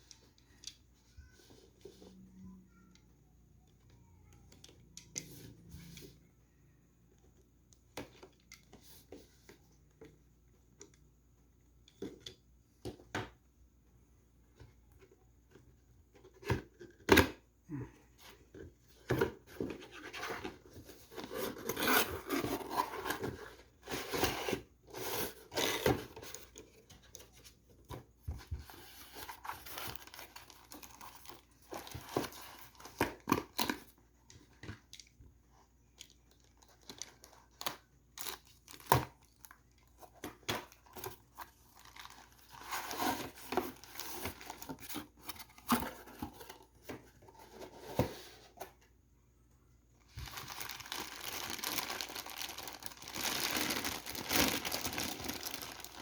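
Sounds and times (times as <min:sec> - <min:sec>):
cardboard and plastic crinkling: 0:18.5 - 0:34.9, 0:36.0 - 0:48.8, 0:50.1 - 0:56.0.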